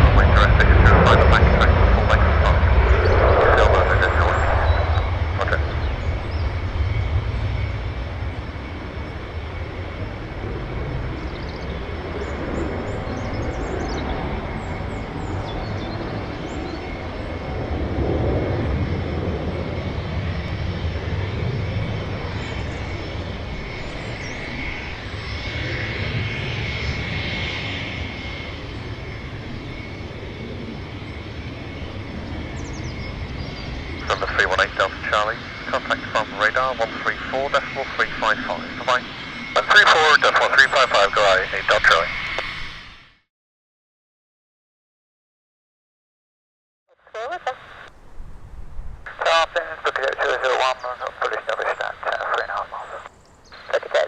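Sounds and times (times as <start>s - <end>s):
high jet whine: 0.0s - 43.2s, 47.2s - 54.0s
jet engines deep rumble: 0.0s - 43.2s, 47.2s - 54.0s.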